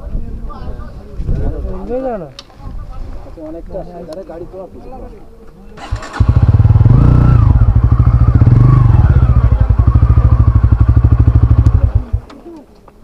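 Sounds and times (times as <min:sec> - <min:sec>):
loud engine running: 0:05.8 - 0:12.2.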